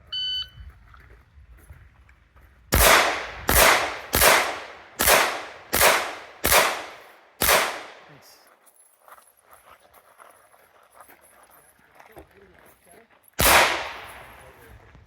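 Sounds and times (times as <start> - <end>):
pistol shots echoing: 2.7 - 8.2, 13.4 - 14.6.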